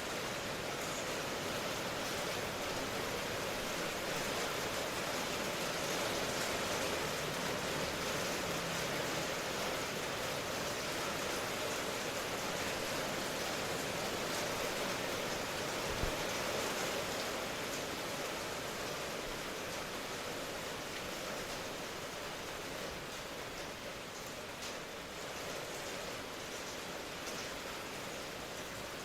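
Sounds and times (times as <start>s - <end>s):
heavy rain hissing: 0.0s - 29.0s.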